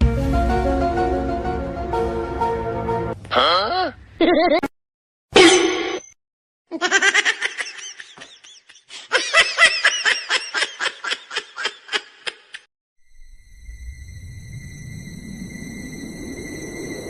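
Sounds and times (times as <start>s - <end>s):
person laughing: 3.3s - 4.7s, 6.7s - 12.7s.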